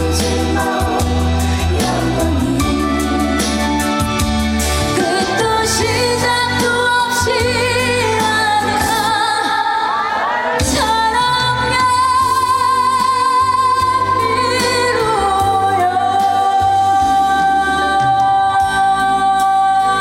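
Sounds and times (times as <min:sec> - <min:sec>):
woman singing with vibrato: 0:00.0 - 0:04.2, 0:04.8 - 0:20.0
instrumental accompaniment: 0:00.0 - 0:09.4.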